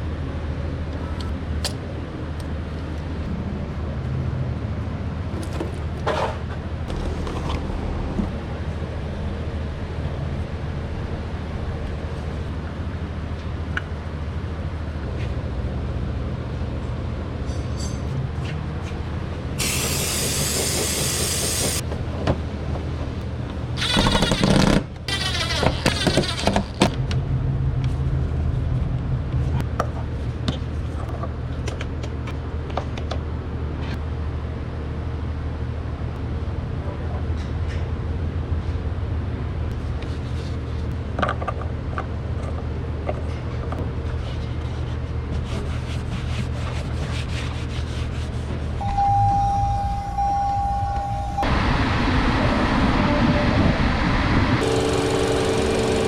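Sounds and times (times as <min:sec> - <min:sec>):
low mechanical hum: 0:00.0 - 0:56.0
pneumatic air tool bursts: 0:19.6 - 0:21.8, 0:23.8 - 0:26.9, 0:54.6 - 0:56.0.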